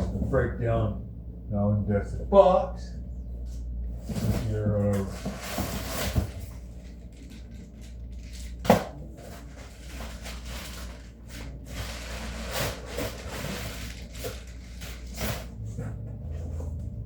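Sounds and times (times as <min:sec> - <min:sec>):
low steady hum: 0:00.0 - 0:17.0
cardboard rustling and creaking: 0:04.0 - 0:17.0.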